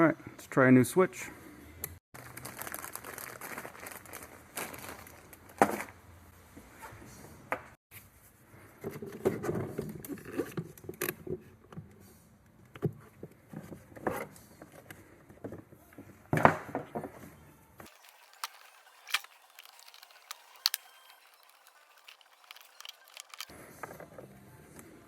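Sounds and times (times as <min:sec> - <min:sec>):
rustling and scraping: 0:17.9 - 0:24.0.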